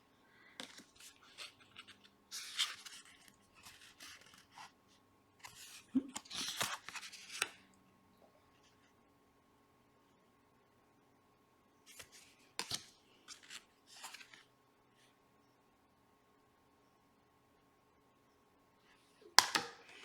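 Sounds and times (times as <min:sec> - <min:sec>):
cards rustling and sliding: 0:00.6 - 0:04.7, 0:05.4 - 0:07.6, 0:11.9 - 0:14.5.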